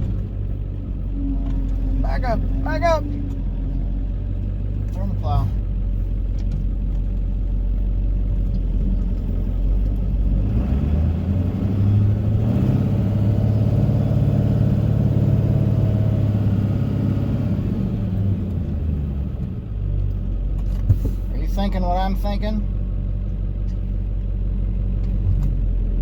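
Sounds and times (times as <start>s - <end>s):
diesel engine revving: 0.0s - 26.0s.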